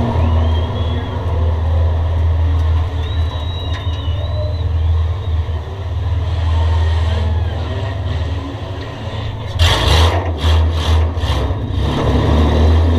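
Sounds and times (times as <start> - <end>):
loud rush of noise: 0.0 - 10.2
race car engine droning: 0.0 - 12.9.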